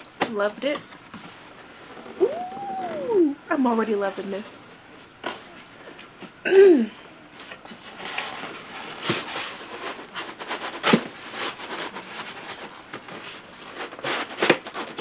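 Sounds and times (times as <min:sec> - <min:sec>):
cardboard rustling and scraping: 0:07.4 - 0:15.0.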